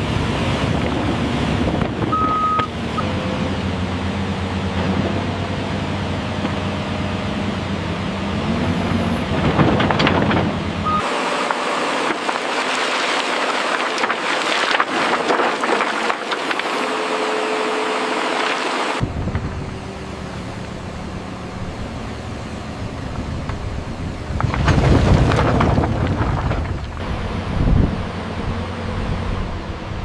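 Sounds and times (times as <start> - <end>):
excavator diesel engine rumble: 0.0 - 30.0
bucket scraping and clanking: 11.5 - 18.8.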